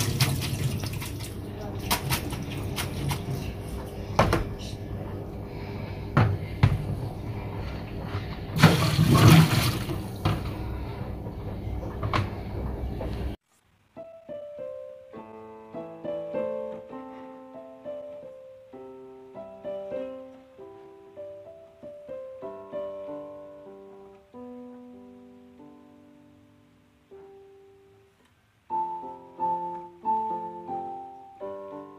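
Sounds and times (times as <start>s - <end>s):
solo piano melody: 9.8s - 31.9s.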